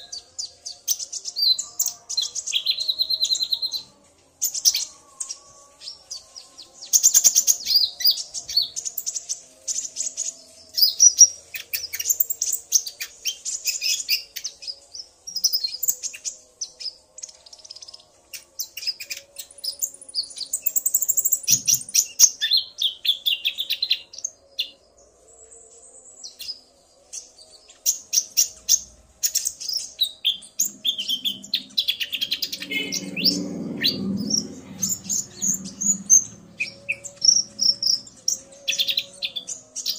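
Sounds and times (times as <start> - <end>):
birds trilling: 27.8 - 39.9
low rumble: 30.5 - 38.4.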